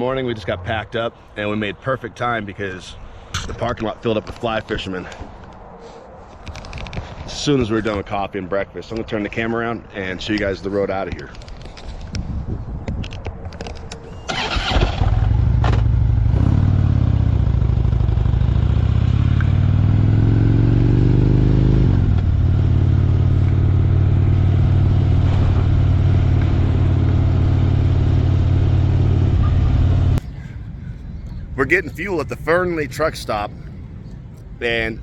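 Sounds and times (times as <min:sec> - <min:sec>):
motorcycle engine accelerating: 0:14.3 - 0:30.2.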